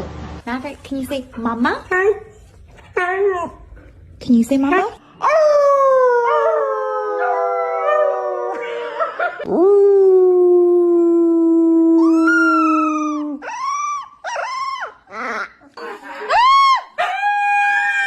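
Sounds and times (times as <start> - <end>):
dog howling: 5.2 - 15.5, 16.3 - 18.0.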